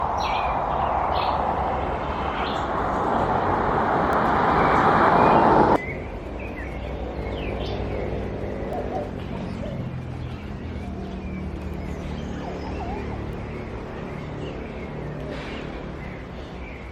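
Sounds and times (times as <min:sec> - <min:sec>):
loud rushing noise: 0:00.0 - 0:09.2
birds chirping: 0:00.0 - 0:16.9.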